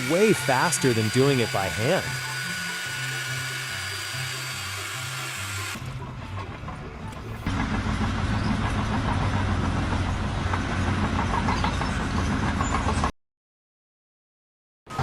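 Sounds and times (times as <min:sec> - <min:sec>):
machine engine running: 0:00.0 - 0:06.0, 0:07.5 - 0:13.1.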